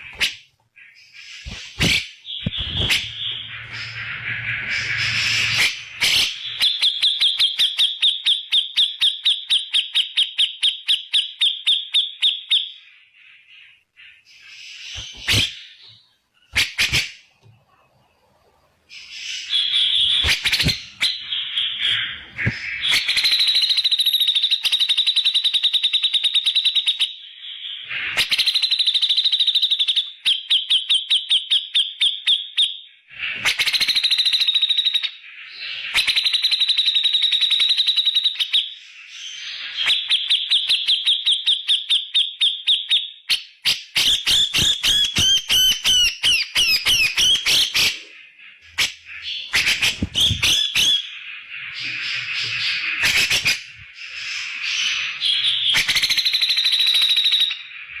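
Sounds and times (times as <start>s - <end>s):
bird singing fast clipped notes: 0.0s - 0.5s, 1.1s - 12.6s, 14.2s - 17.6s, 19.0s - 27.1s, 35.8s - 48.0s, 48.7s - 57.6s.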